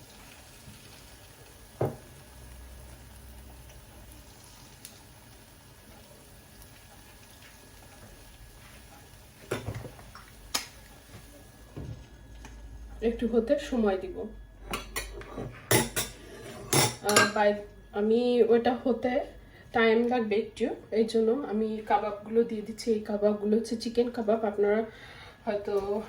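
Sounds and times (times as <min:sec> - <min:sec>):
egg sizzling in frying pan: 0:00.0 - 0:12.6.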